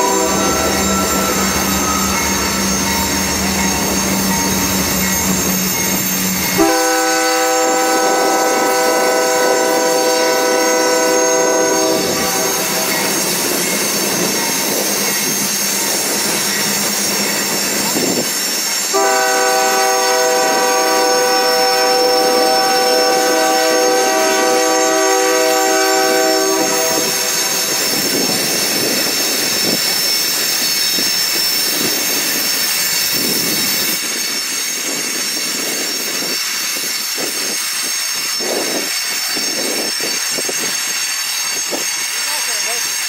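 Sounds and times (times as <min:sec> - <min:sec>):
locomotive air horn chord: 0:00.0 - 0:02.8, 0:06.6 - 0:13.1, 0:18.9 - 0:28.0
high wheel squeal: 0:00.0 - 0:43.0.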